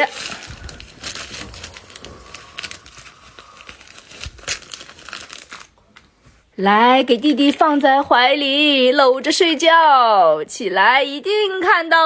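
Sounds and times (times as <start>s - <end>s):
gift wrapping crinkling: 0.0s - 6.2s.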